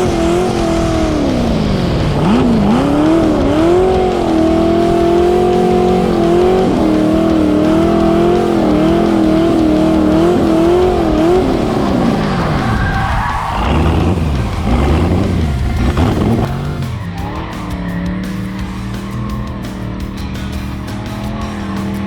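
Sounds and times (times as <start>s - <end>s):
car engine revving high: 0.0s - 22.0s.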